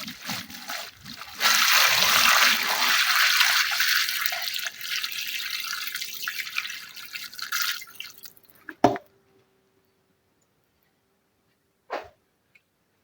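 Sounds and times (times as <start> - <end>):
tap water running into tub: 0.0 - 8.4.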